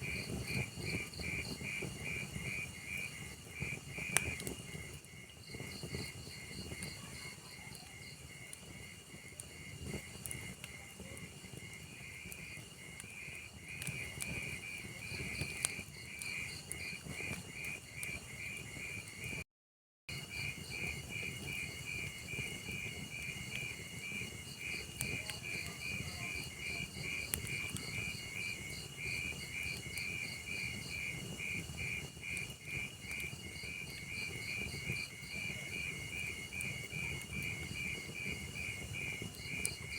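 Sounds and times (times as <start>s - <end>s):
log fire crackling and popping: 0.0s - 19.4s, 20.1s - 39.9s
crickets chirping: 0.1s - 10.8s, 20.2s - 39.9s.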